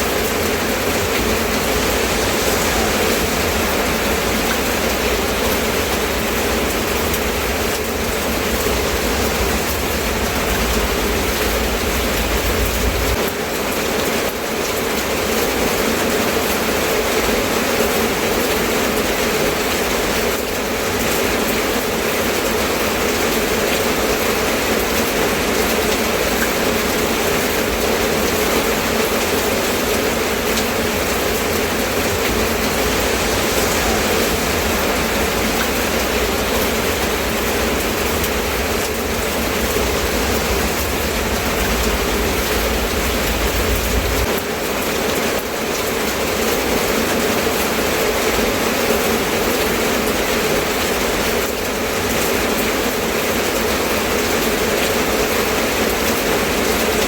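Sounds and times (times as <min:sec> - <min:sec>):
low rumble: 0:00.0 - 0:13.7, 0:29.1 - 0:44.8
steady rain hiss: 0:00.0 - 0:57.0.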